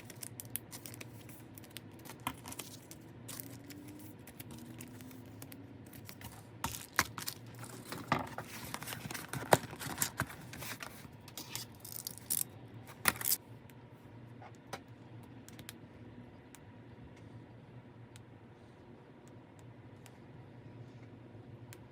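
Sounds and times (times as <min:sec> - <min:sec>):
packaging crinkling: 0:00.0 - 0:13.4.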